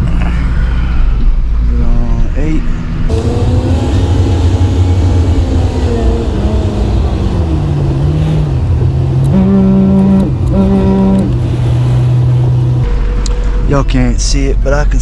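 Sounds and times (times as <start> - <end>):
loud low horn tone: 3.1 - 13.6
truck engine running: 3.1 - 13.7.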